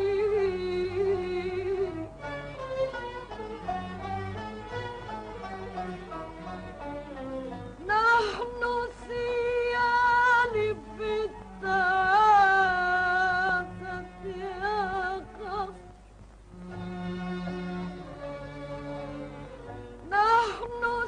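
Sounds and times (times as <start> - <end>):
woman singing: 0.0 - 2.2, 7.8 - 16.0, 20.0 - 21.0
instrumental accompaniment: 0.0 - 21.0.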